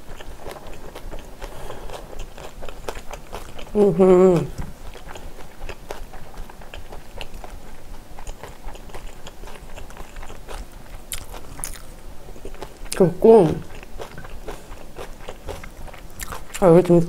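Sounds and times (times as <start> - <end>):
wet chewing: 0.1 - 17.0
person humming: 3.8 - 4.6.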